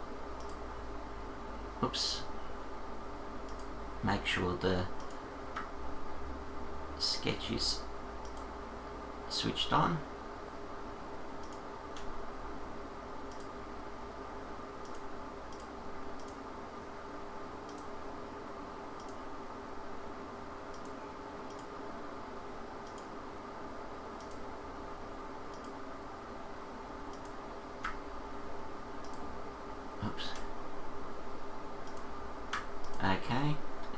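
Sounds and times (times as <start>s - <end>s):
steady background hum: 0.0s - 33.9s
computer mouse clicking: 0.4s - 0.6s, 3.4s - 3.7s, 5.0s - 5.7s, 8.2s - 8.5s, 11.4s - 12.1s, 13.3s - 13.6s, 14.8s - 16.4s, 17.6s - 17.9s, 19.0s - 19.2s, 20.7s - 21.7s, 22.8s - 23.1s, 24.2s - 24.4s, 25.5s - 25.8s, 27.1s - 28.0s, 29.0s - 29.3s, 31.8s - 33.0s.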